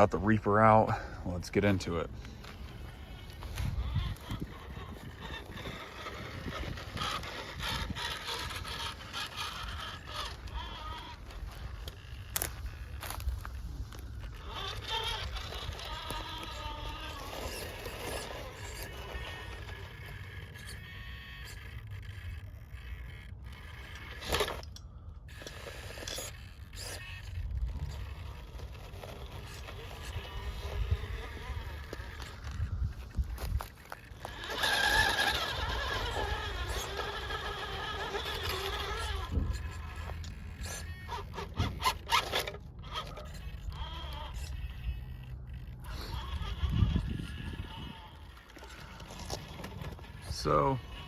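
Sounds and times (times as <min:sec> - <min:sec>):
small electric motor whining: 0:00.0 - 0:51.0
tires scraping over terrain: 0:00.0 - 0:51.0
wind rumble on microphone: 0:03.0 - 0:09.2, 0:30.1 - 0:33.8, 0:38.5 - 0:40.8, 0:45.8 - 0:48.4.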